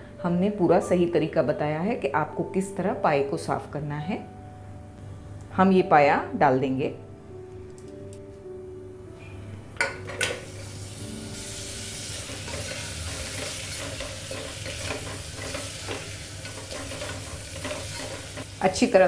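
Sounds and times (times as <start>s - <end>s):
sizzling in hot fat: 10.2s - 19.0s
spatula scraping pot: 12.1s - 18.5s.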